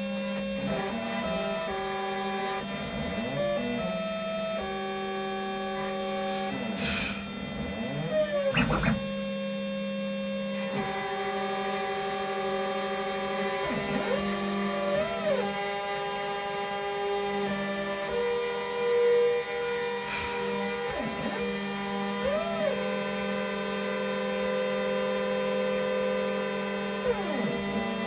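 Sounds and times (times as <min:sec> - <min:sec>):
stepper motor whine: 0:03.1 - 0:09.5
spindle hum: 0:06.5 - 0:09.3
short hiss: 0:06.8 - 0:07.3.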